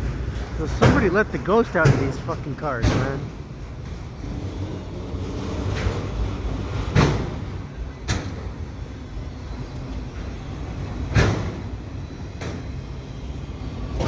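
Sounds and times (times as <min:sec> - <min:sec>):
freight cars rumbling past: 0:00.0 - 0:14.0
wheels banging on track: 0:00.0 - 0:14.0.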